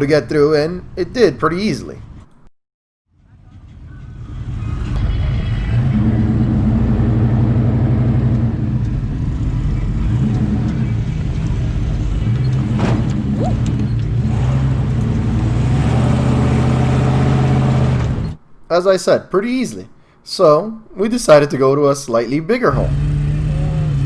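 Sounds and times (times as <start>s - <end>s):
pickup truck engine running: 3.3s - 18.5s, 22.6s - 24.0s
truck driving through mud: 3.4s - 18.4s, 22.8s - 24.0s.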